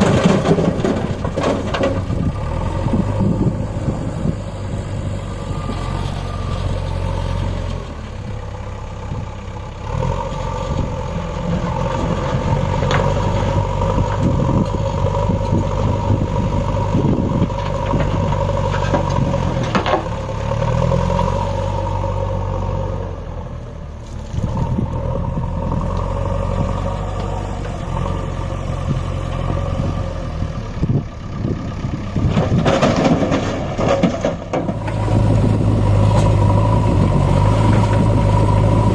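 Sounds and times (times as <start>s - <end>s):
clattering: 0.0s - 2.2s, 32.3s - 35.0s
tractor diesel engine under load: 0.0s - 38.9s.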